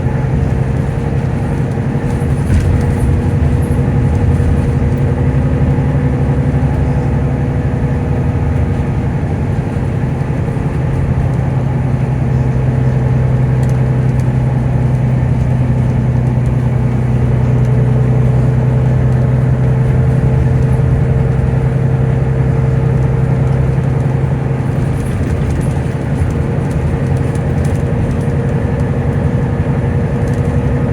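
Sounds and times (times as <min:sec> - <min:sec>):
bus engine idling: 0:00.0 - 0:30.9
engine cooling fan drone: 0:00.0 - 0:30.9.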